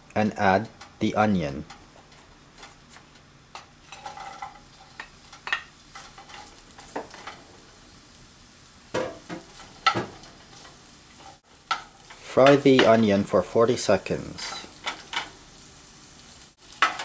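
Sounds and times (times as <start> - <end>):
onion sizzling in a frying pan: 0.6 - 17.0
utensil stirring and knocking on pan: 1.6 - 7.6, 8.9 - 13.2, 16.7 - 17.0.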